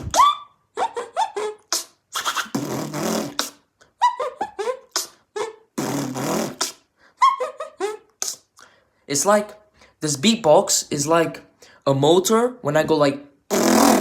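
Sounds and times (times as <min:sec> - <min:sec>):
beatboxing squeaky chirps: 0:00.0 - 0:06.9, 0:08.2 - 0:08.5, 0:13.5 - 0:14.0
beatboxing hissing mouth bursts: 0:01.7 - 0:03.7, 0:04.9 - 0:05.2, 0:05.8 - 0:06.9, 0:08.2 - 0:08.5, 0:13.5 - 0:14.0.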